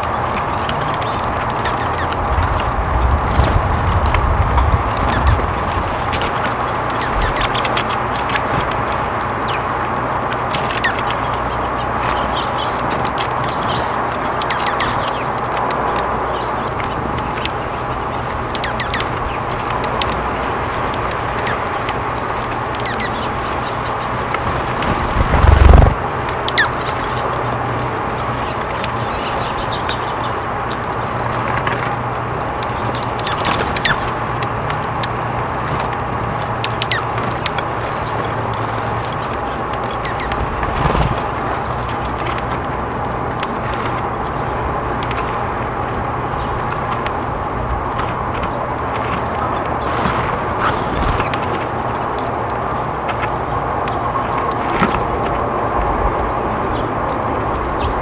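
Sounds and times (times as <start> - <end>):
small birds chirping: 0.0 - 55.4
low hum and hiss: 0.0 - 58.0.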